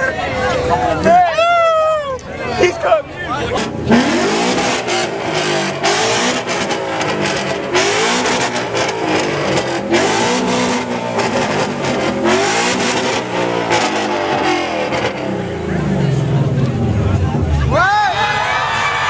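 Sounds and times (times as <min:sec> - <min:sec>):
car engine revving: 0:02.9 - 0:17.8
exhaust pops and crackles: 0:03.4 - 0:15.4.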